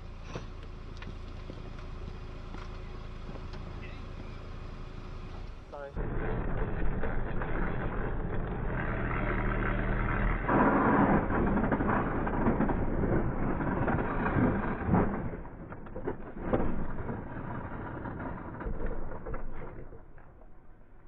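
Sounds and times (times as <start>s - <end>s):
loud rough rush of noise: 5.8s - 18.7s.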